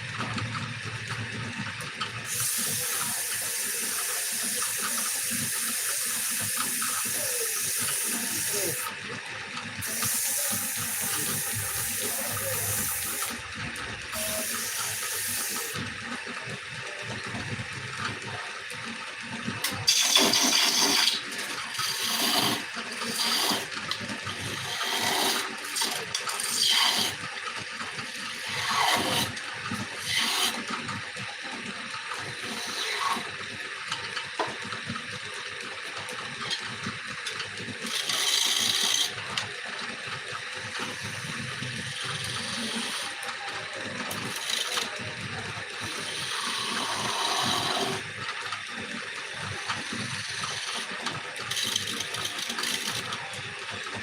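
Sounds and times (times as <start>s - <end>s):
lathe tool scraping spinning wood: 2.3s - 9.0s, 9.8s - 15.8s, 19.7s - 27.2s, 28.0s - 30.8s, 32.2s - 33.4s, 37.8s - 39.2s, 40.7s - 43.3s, 44.1s - 45.0s, 45.8s - 48.1s, 49.7s - 53.1s.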